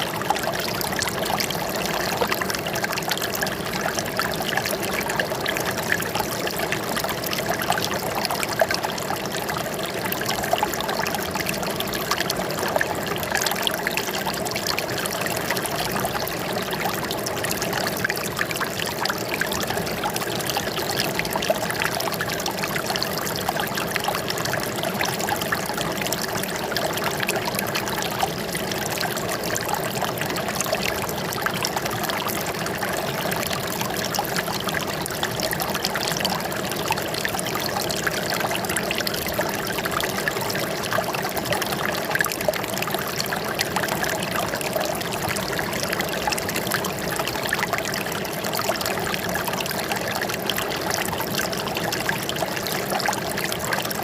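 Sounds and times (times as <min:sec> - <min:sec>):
water trickling and splashing: 0:00.0 - 0:54.0.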